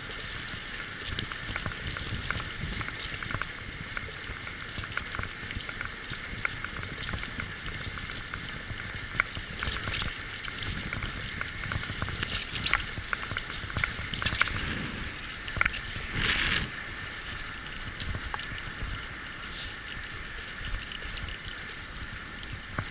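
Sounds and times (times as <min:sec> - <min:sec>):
dog paws pattering on trail: 0:00.0 - 0:22.9
wheels crunching and rattling: 0:00.0 - 0:22.9
rush of noise: 0:14.4 - 0:16.8.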